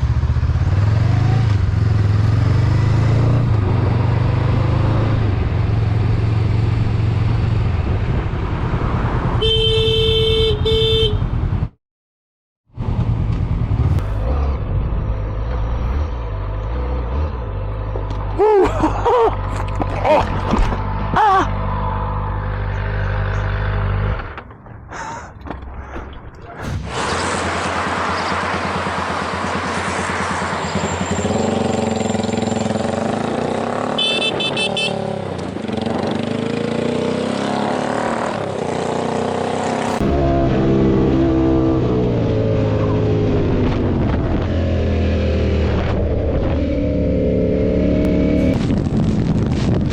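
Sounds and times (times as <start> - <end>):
motorcycle engine revving: 0.0 - 9.6, 26.6 - 49.8
person exclaiming: 18.4 - 19.3, 21.1 - 21.6.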